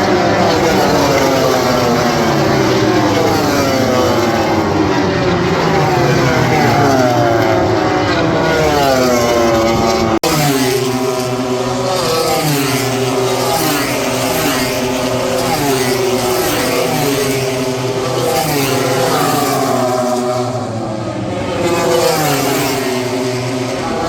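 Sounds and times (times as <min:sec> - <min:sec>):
race motorcycles accelerating: 0:00.0 - 0:24.0.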